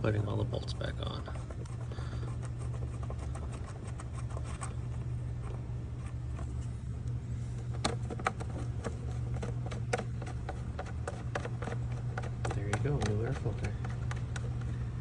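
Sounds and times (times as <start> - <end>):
steady low hum: 0.0 - 15.0
plastic housing clicks: 7.0 - 14.8.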